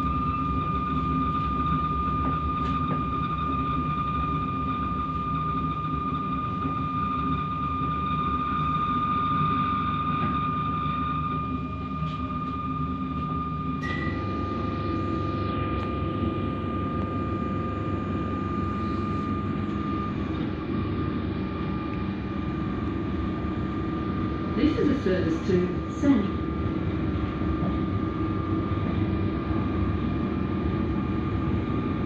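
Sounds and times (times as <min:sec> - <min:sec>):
high whine: 0:00.0 - 0:32.0
brief higher tone: 0:09.5 - 0:20.4.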